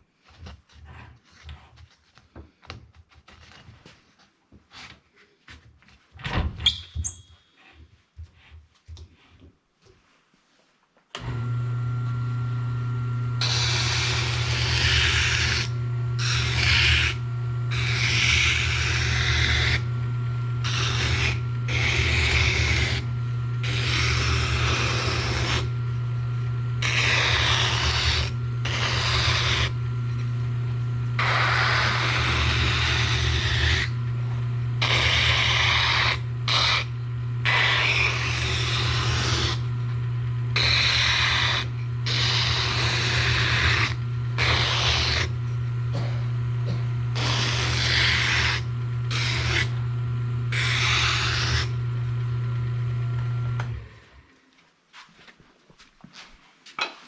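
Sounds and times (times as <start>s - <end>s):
electric sander humming: 11.2s - 53.9s
wood rasping against sander: 13.4s - 45.7s, 46.7s - 49.9s, 50.5s - 52.3s.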